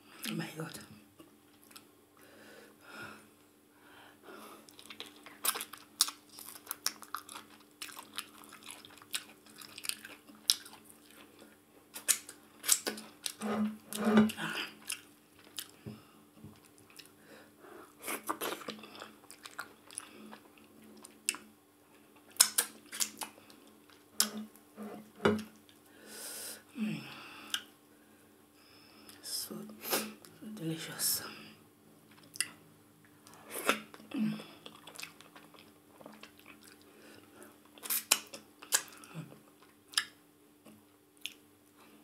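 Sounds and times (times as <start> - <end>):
person chewing and biting food: 4.7 - 13.4, 14.8 - 15.8, 18.2 - 21.4
mouth clicks and smacks: 22.3 - 24.4, 32.1 - 32.6, 37.8 - 40.2, 41.2 - 41.4.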